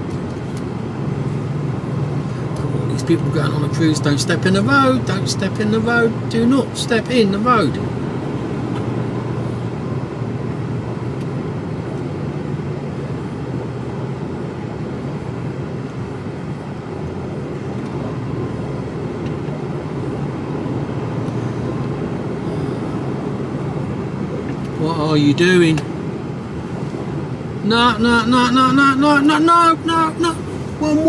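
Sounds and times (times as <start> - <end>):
lorry diesel engine running: 0.0 - 31.0
road noise: 0.0 - 31.0.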